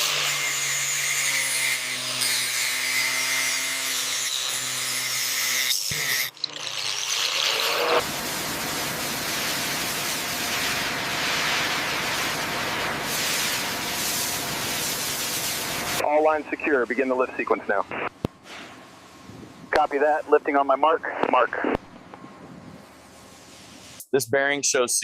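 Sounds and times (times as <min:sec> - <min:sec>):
power tool whining: 0:00.0 - 0:08.1
steady hissing rush: 0:08.0 - 0:21.7.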